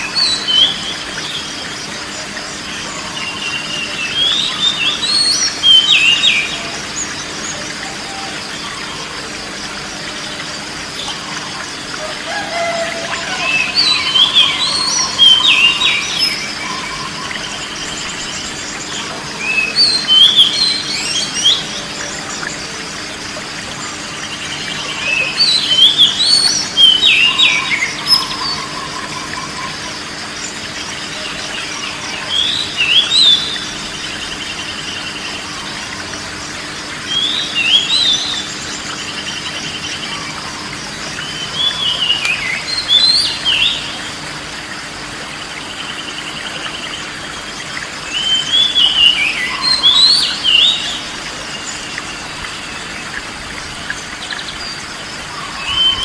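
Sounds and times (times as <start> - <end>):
running water hiss: 0.0 - 56.0.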